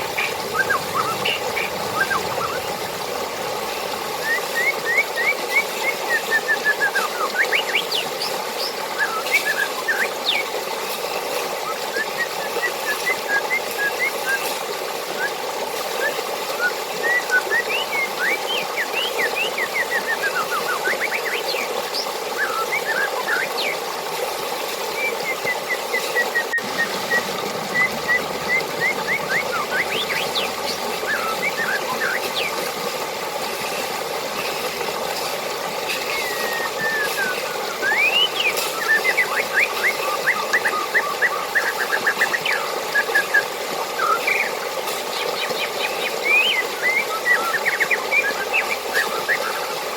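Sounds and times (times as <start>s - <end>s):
birds chirping: 0.0s - 10.6s, 24.9s - 43.4s, 44.0s - 49.4s
water running: 0.0s - 49.9s.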